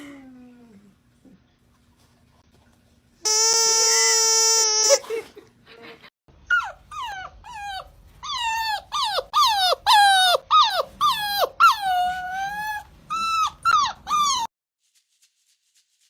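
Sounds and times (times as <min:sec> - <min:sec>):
dog whining yelps: 0:06.5 - 0:14.5.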